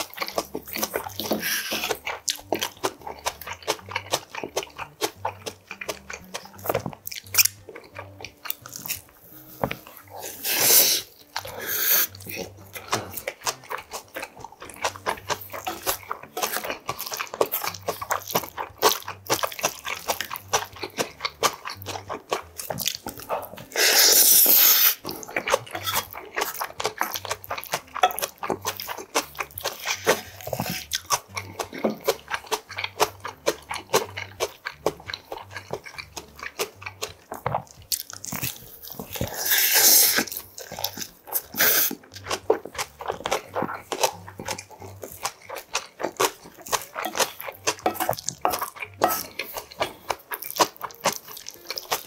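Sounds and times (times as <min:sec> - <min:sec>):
man chewing and smacking lips: 0:00.0 - 0:52.0.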